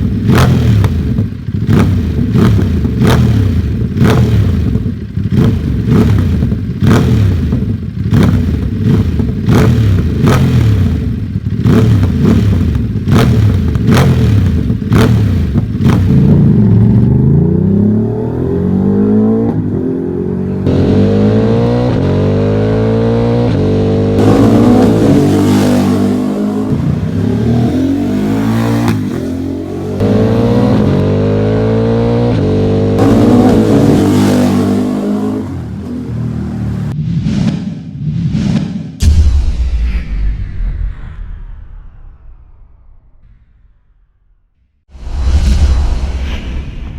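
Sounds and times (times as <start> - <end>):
motorcycle engine revving: 0.0 - 37.8.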